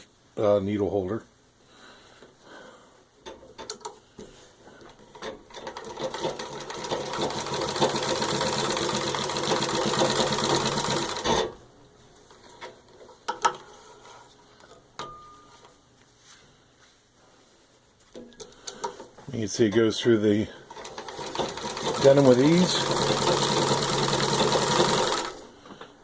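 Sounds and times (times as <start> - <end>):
treadle sewing machine stitching: 5.5 - 11.6, 20.7 - 25.5.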